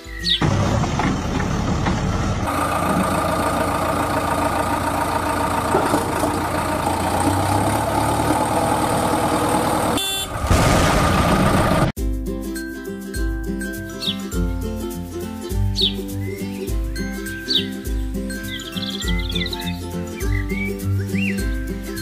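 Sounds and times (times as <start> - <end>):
motor vehicle noise: 0.0 - 12.0
steady horn-like tone: 10.0 - 10.5
background music: 12.0 - 22.0.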